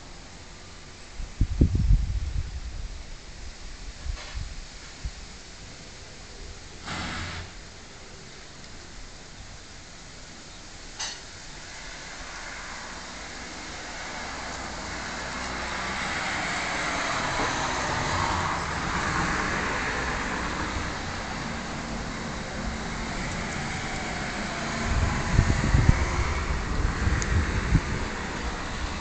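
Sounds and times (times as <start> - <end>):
low rumbling and buffeting: 0.0 - 29.0
road traffic noise: 0.0 - 29.0.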